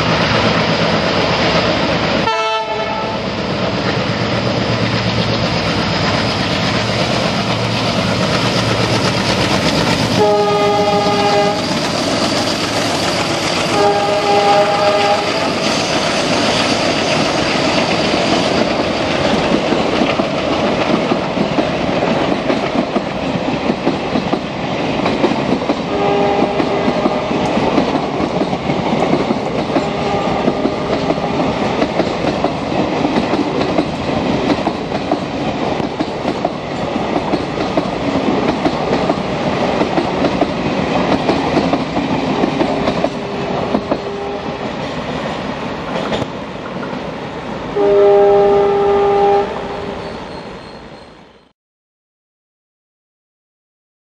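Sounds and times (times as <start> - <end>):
train rolling rumble: 0.0 - 51.2
distant locomotive horn: 2.2 - 3.4, 10.1 - 11.7, 13.7 - 15.6, 25.9 - 27.6, 29.8 - 31.5, 43.2 - 44.6, 47.8 - 50.7
train wheels clacking over rail joints: 3.4 - 47.1.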